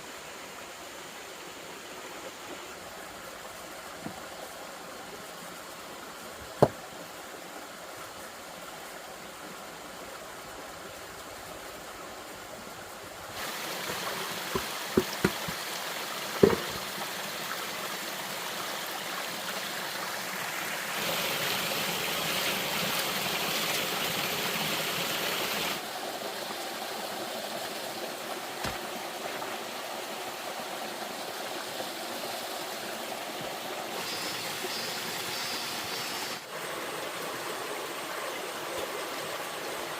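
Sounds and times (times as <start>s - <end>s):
rush of flowing water: 0.0s - 39.9s
sharp knocks: 14.5s - 15.6s, 16.4s - 16.8s.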